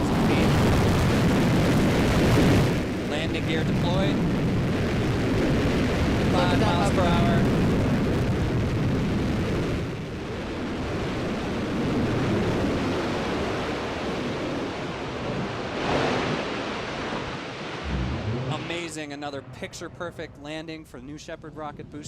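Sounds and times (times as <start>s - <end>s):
rocket engine rumble: 0.0s - 12.3s, 17.8s - 22.0s.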